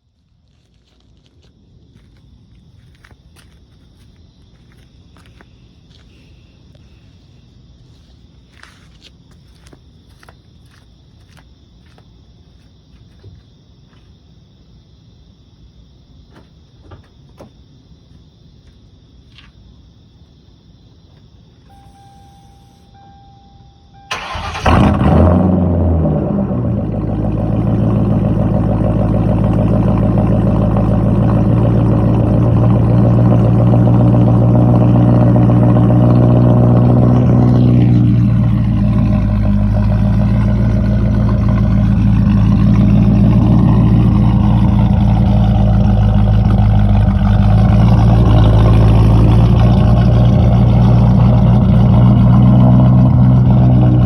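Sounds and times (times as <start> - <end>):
car engine starting and idling: 21.7 - 54.0.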